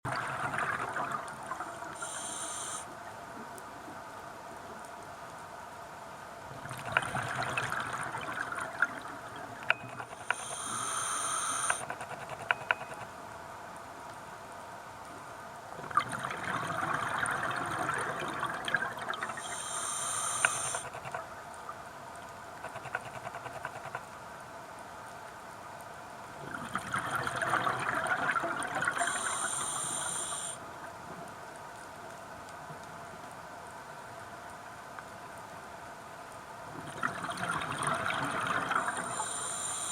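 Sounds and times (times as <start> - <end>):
scuba regulator breathing underwater: 1.8 - 2.9, 10.1 - 12.2, 19.3 - 21.2, 28.9 - 30.6, 38.6 - 39.9.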